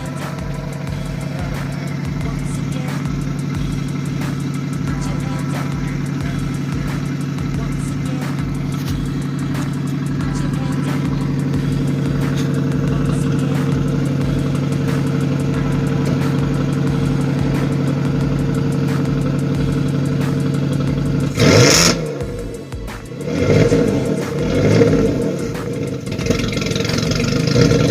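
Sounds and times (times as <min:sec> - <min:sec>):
car engine idling: 0:00.0 - 0:27.9
engine revving: 0:00.0 - 0:27.9.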